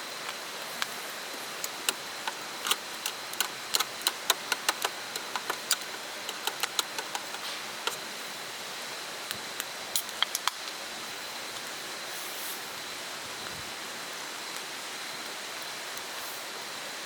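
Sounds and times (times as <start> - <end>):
sharp clicks and ticks: 1.5 - 8.0.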